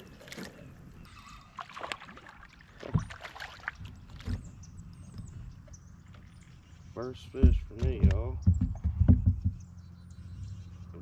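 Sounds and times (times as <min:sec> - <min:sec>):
water splashing: 0:00.0 - 0:04.6.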